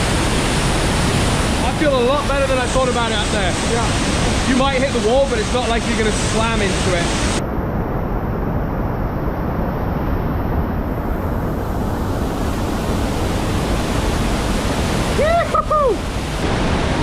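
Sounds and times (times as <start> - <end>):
rushing whitewater roar: 0.0 - 7.4, 9.3 - 17.0.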